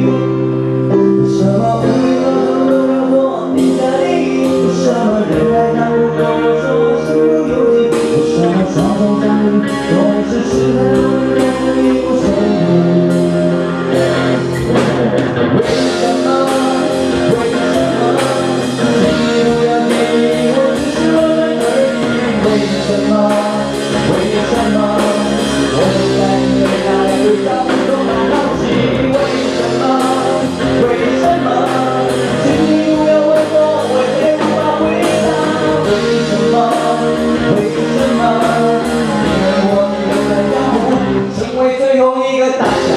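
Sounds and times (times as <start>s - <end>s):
guitar: 0.0s - 42.9s
person singing: 0.0s - 42.9s
drum kit beat: 7.6s - 41.6s, 42.6s - 42.9s.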